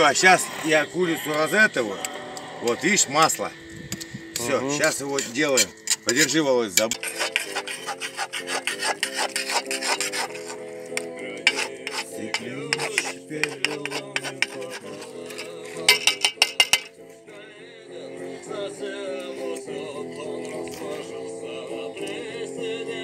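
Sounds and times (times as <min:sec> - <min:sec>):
song playing in background: 0:00.0 - 0:23.0
scraping and rubbing strokes: 0:04.8 - 0:17.2.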